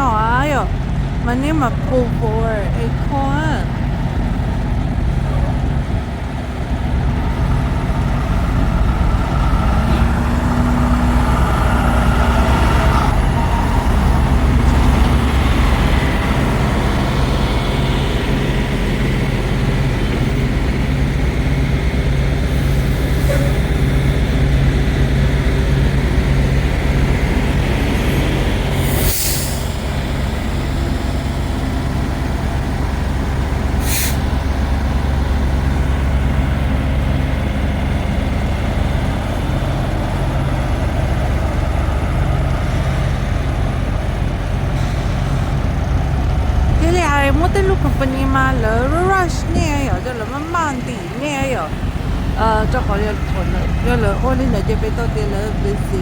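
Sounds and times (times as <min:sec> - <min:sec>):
diesel truck engine droning: 0:00.0 - 0:56.0
air brake hiss: 0:28.7 - 0:29.9, 0:33.8 - 0:34.3.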